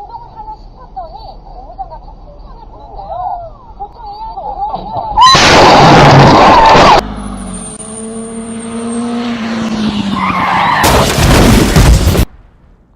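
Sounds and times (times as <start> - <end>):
loud harsh vehicle noise: 5.2 - 12.0
engine running: 6.8 - 12.0.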